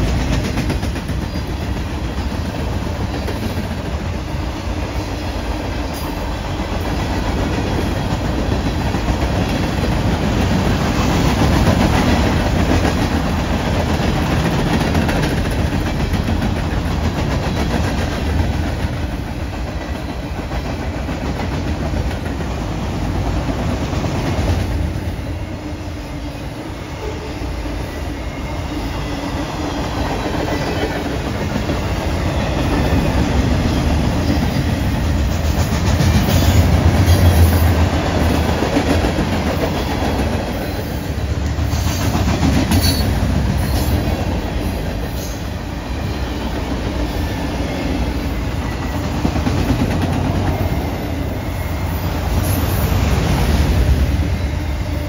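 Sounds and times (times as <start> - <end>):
freight train cars rolling: 0.0 - 55.0.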